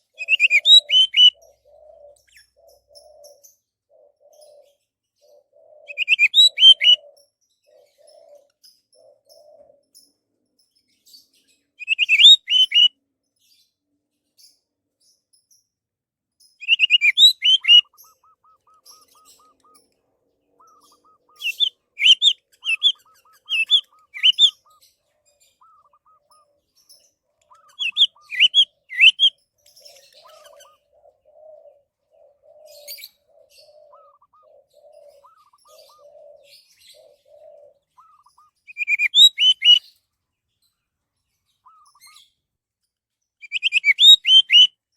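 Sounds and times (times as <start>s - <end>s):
faint lower bird calls: 0.0s - 10.1s, 11.2s - 13.0s, 16.6s - 40.0s, 41.3s - 42.4s, 43.4s - 44.9s
thrush singing whistled phrases: 0.2s - 1.4s, 5.9s - 7.0s, 11.8s - 12.9s, 16.6s - 18.6s, 20.7s - 24.6s, 27.6s - 29.4s, 38.0s - 39.8s, 43.4s - 44.7s.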